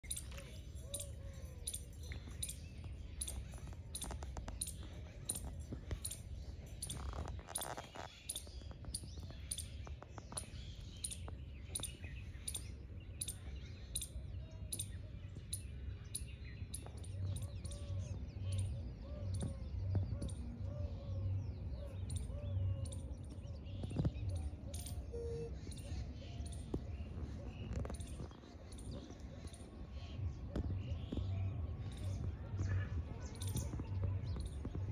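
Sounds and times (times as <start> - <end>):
lower repeated bird call: 0.0 - 6.2, 16.7 - 34.9
birds chirping high: 0.0 - 34.9.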